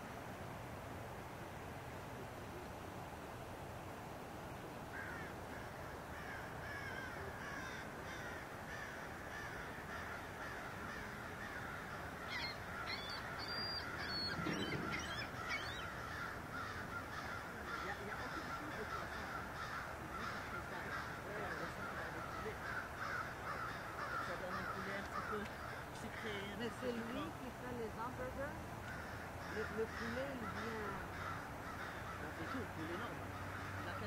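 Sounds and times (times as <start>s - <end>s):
flock of birds calling: 5.0s - 27.3s, 28.0s - 34.0s.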